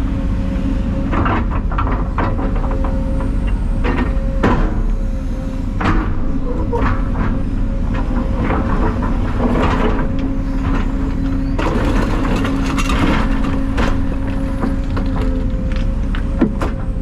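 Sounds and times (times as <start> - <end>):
excavator hydraulic whine: 0.1 - 17.0
metal and debris clanking: 5.7 - 17.0.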